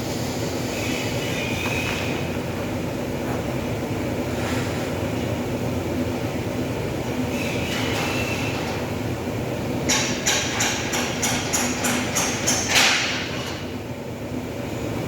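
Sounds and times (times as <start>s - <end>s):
workshop machine drone: 0.0s - 15.0s
hammer tapping on sheet metal: 9.9s - 13.2s.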